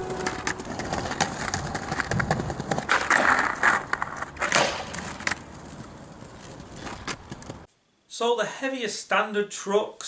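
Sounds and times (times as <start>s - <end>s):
skateboard trucks grinding metal: 0.0s - 7.5s
skateboard rolling and clacking: 0.0s - 7.7s.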